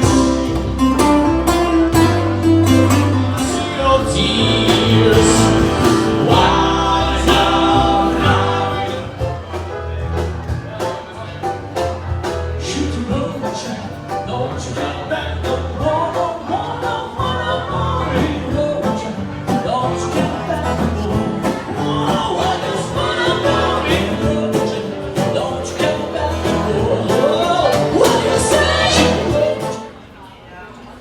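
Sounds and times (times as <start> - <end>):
song with singing over beat: 3.3 - 9.8, 12.6 - 30.1.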